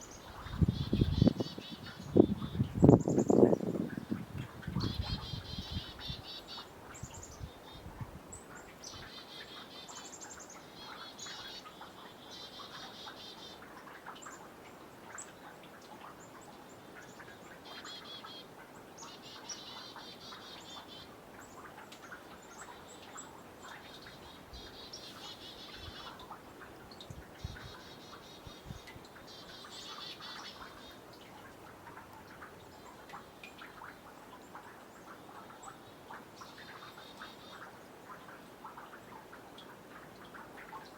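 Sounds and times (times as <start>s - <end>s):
small birds trilling: 0.0s - 7.9s
water drips into pond: 0.0s - 40.9s.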